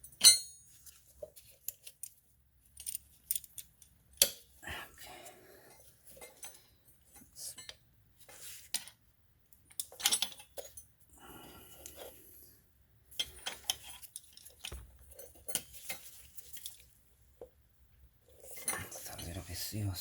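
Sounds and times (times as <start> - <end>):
metal tools clinking and scraping: 0.0 - 3.9, 6.0 - 7.8, 9.7 - 10.9, 13.1 - 16.9, 18.3 - 19.8.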